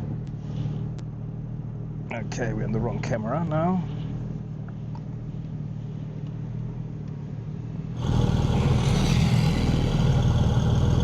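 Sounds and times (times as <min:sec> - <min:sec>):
car engine running: 0:03.8 - 0:11.0.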